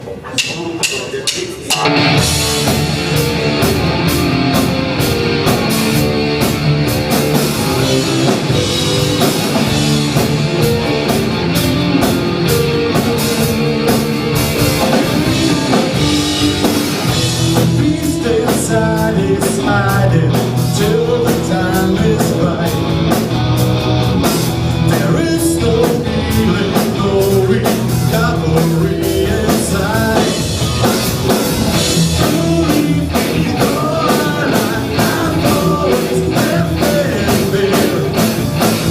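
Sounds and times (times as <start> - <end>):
drum kit: 0.0 - 38.9
electric guitars: 1.6 - 38.9
person singing: 14.9 - 23.1, 24.7 - 30.6, 31.7 - 38.4.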